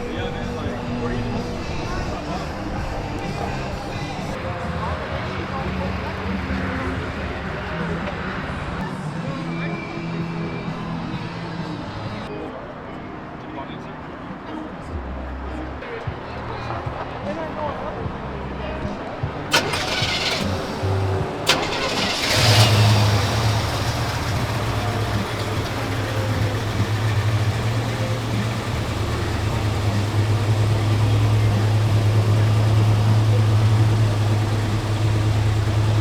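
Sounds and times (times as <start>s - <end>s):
car engine idling: 19.5s - 36.0s.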